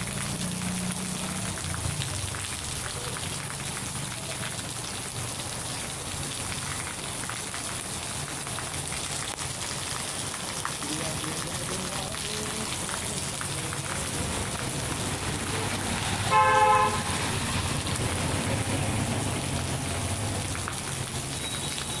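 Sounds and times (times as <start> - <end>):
heavy rain falling on street: 0.0 - 22.0
vehicle driving on wet road: 0.0 - 22.0
car horn toot: 16.3 - 17.2.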